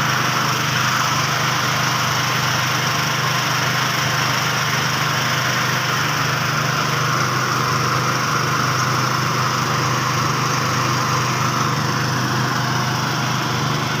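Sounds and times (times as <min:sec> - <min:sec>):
small engine humming: 0:00.0 - 0:14.0
threshing machine whirring: 0:00.0 - 0:14.0.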